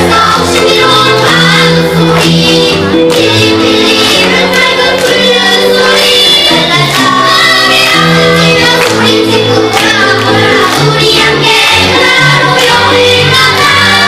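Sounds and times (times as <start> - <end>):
children's choir singing: 0.0 - 14.0
instrumental accompaniment: 0.0 - 14.0.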